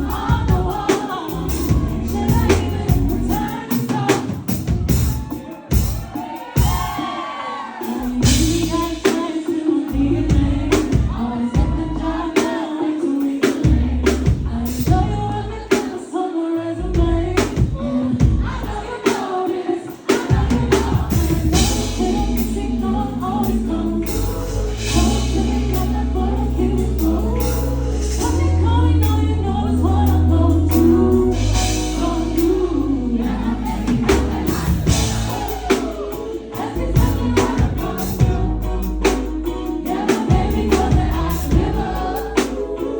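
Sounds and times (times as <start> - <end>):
woman singing: 0.0 - 5.0, 5.7 - 42.9
live band playing: 0.0 - 7.2, 7.8 - 16.1, 16.9 - 42.9.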